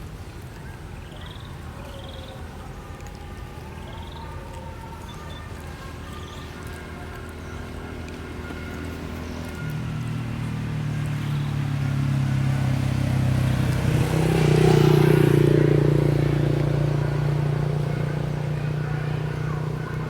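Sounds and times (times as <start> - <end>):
vehicle engine passing by: 5.5 - 20.0.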